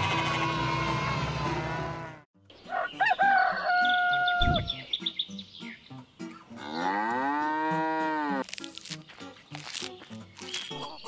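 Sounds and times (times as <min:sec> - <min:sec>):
cow mooing: 0:01.4 - 0:02.2, 0:06.6 - 0:08.4.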